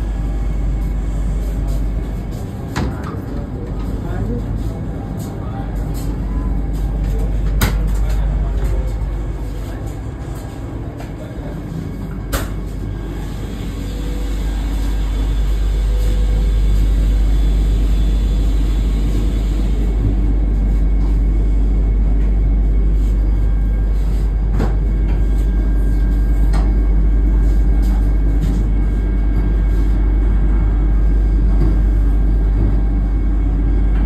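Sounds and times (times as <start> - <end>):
train rumbling: 0.0 - 34.0.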